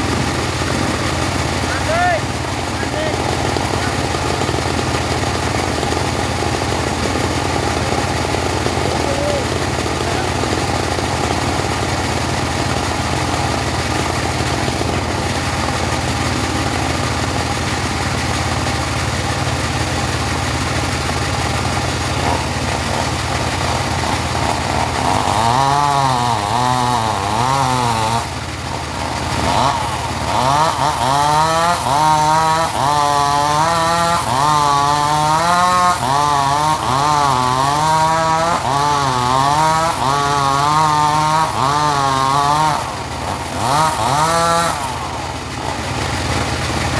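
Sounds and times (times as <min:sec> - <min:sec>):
portable sawmill engine running: 0:00.0 - 0:46.9.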